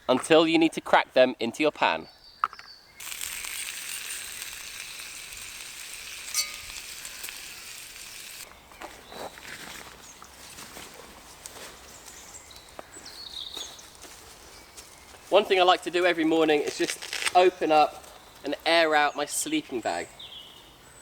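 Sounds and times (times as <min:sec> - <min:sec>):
food sizzling in a pan: 0:03.0 - 0:08.5
rustling: 0:13.4 - 0:18.5.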